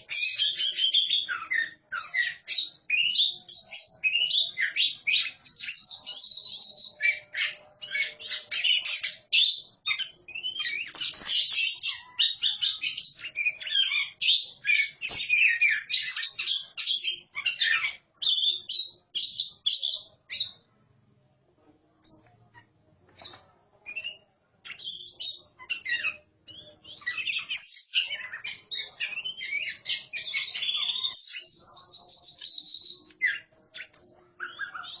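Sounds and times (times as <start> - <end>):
birds singing whistles and chatter: 0.0 - 20.7, 22.0 - 35.0.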